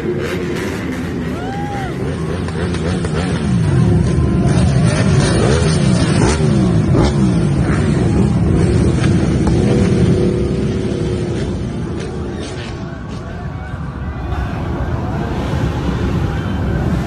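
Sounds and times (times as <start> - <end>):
motorcycle engines revving past: 0.0 - 13.4.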